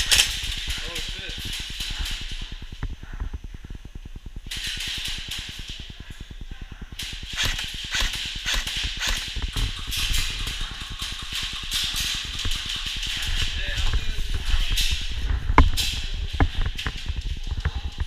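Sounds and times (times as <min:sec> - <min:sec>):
airsoft guns full-auto bursts: 0:07.0 - 0:13.0.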